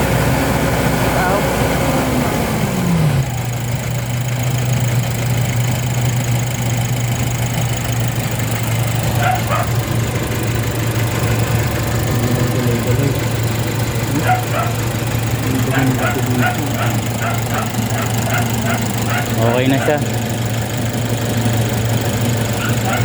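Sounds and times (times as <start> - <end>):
van engine idling: 0.0 - 23.0
dog barking: 9.0 - 10.0, 11.2 - 20.2, 22.5 - 23.0.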